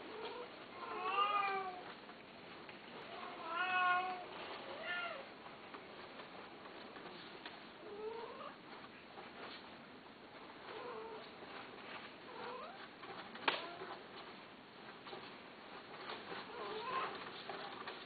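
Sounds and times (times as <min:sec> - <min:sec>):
cat meowing: 0:03.2 - 0:05.3.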